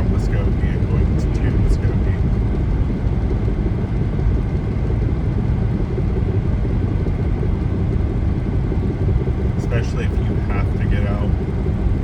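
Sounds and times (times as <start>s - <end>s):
car cruising on highway: 0.0s - 12.0s.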